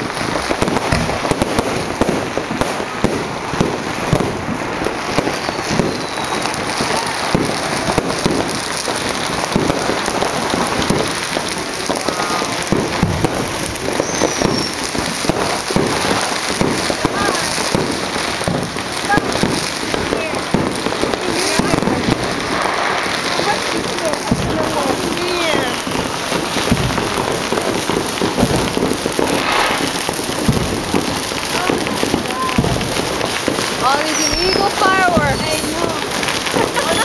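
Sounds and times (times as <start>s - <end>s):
fireworks popping and banging: 0.0s - 37.0s
firework whistle: 5.0s - 8.4s, 11.9s - 17.9s, 24.5s - 31.0s, 31.6s - 37.0s.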